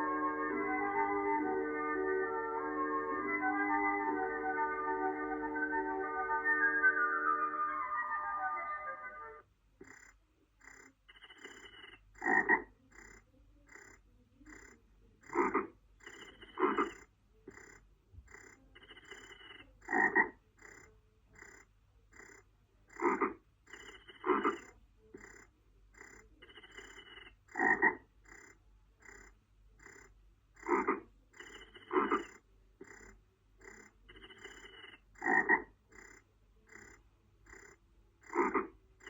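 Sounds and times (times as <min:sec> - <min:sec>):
faint regular chirping: 0:11.1 - 0:12.1, 0:16.0 - 0:16.7, 0:18.8 - 0:19.7, 0:23.7 - 0:24.3, 0:26.4 - 0:27.4, 0:31.3 - 0:35.1
frogs croaking: 0:11.1 - 0:13.9, 0:14.5 - 0:20.8, 0:22.2 - 0:38.8.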